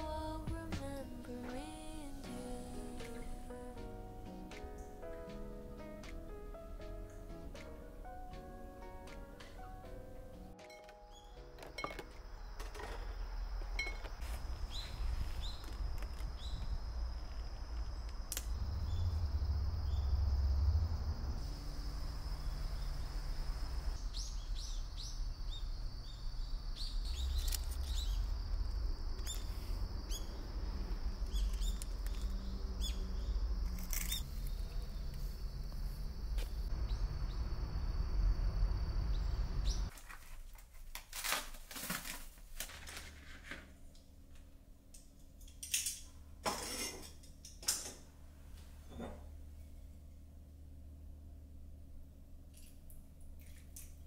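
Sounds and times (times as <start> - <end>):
low rumble: 13.2 - 39.9
small birds chirping: 23.8 - 28.5, 29.2 - 30.5, 31.1 - 35.5
dishes clinking: 46.5 - 48.0.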